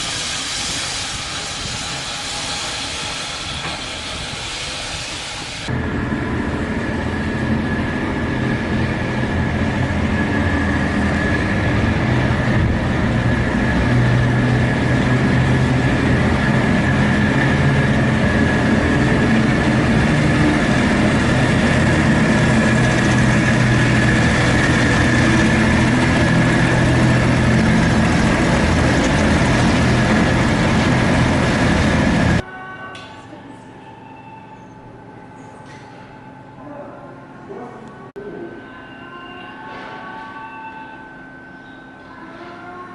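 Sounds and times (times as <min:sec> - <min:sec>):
steam train rail noise: 0:00.0 - 0:05.7.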